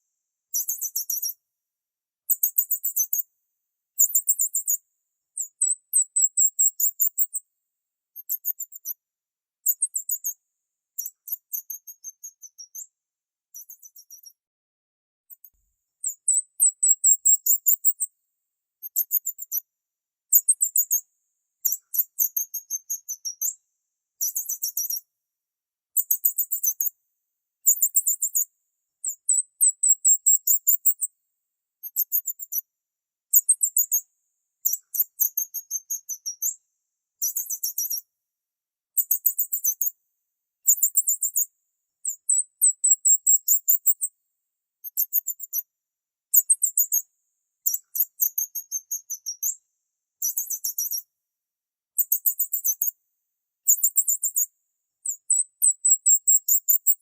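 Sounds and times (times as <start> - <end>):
small bird high chirping: 0.5 - 1.4, 2.3 - 3.3, 4.0 - 4.8, 5.4 - 7.4, 8.2 - 9.0, 9.6 - 10.4, 11.0 - 14.4, 15.3 - 18.1, 18.8 - 19.7, 20.3 - 21.0, 21.6 - 23.6, 24.2 - 25.1, 26.0 - 26.9, 27.6 - 31.1, 31.8 - 32.7, 33.3 - 36.6, 37.2 - 38.1, 39.0 - 39.9, 40.6 - 44.1, 44.8 - 45.7, 46.3 - 47.0, 47.6 - 49.6, 50.2 - 51.1, 52.0 - 53.0, 53.6 - 57.0.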